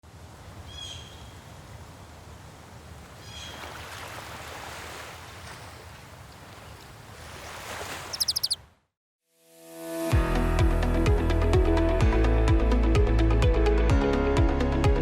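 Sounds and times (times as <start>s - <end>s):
high chirps: 8.1s - 8.6s.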